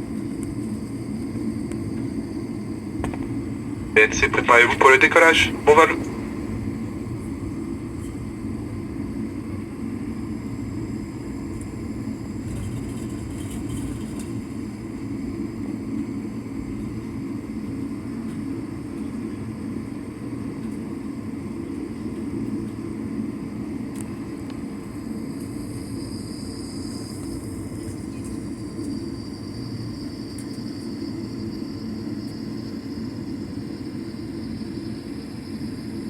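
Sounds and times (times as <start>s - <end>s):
jet airliner cabin rumble: 0.0s - 20.8s.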